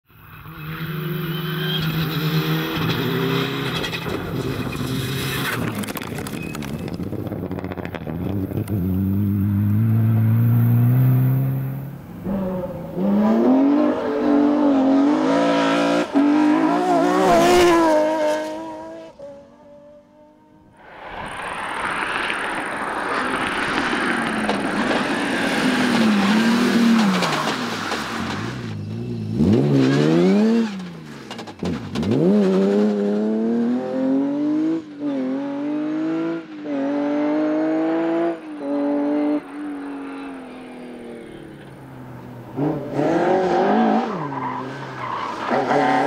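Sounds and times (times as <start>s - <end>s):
rally car engines accelerating: 0.2s - 19.5s, 21.5s - 46.0s.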